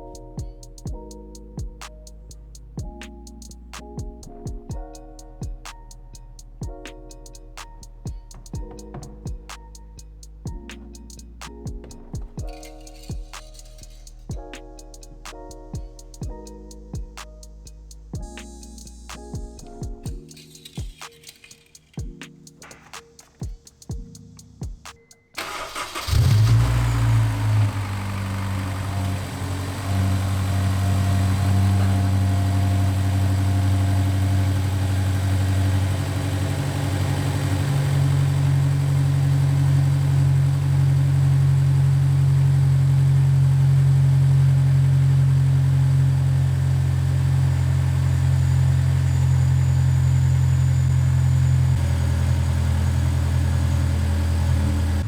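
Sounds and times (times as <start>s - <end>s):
car engine starting and idling: 25.4s - 55.0s.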